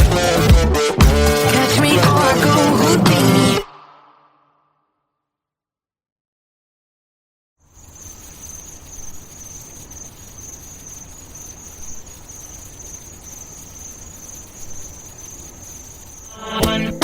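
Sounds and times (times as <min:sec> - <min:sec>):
insect trill: 0:07.7 - 0:17.0.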